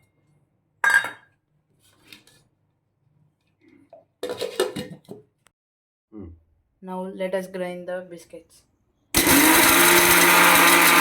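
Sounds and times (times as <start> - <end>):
kitchen utensils clattering: 4.2 - 5.1.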